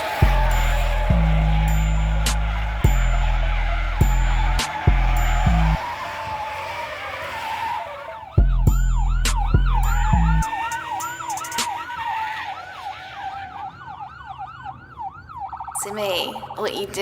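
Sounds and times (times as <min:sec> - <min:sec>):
rap beat with heavy bass: 0:00.0 - 0:05.8, 0:08.4 - 0:11.8
electronic siren yelping: 0:00.0 - 0:17.0.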